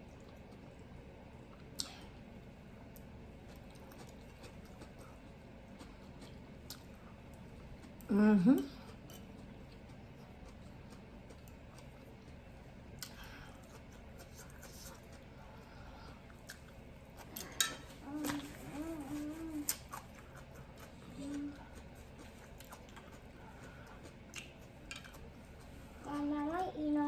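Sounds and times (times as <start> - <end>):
chewing: 2.9 - 26.6
person humming mm: 8.1 - 8.8, 18.0 - 19.8, 21.1 - 21.8.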